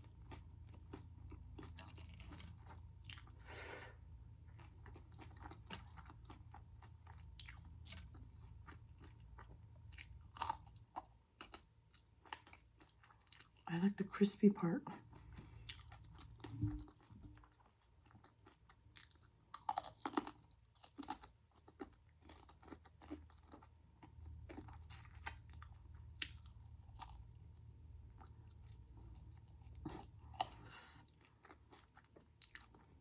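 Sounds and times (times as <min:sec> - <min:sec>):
chewing crispy fried food: 0:00.0 - 0:33.0.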